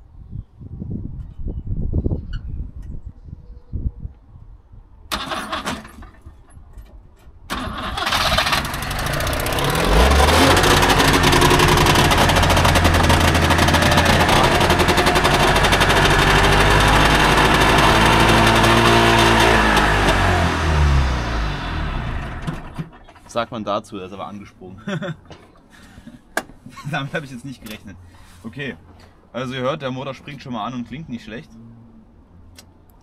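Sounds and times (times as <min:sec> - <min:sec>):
starter motor cranking: 0:05.1 - 0:06.1, 0:07.5 - 0:23.3
two-stroke engine running: 0:08.1 - 0:23.2.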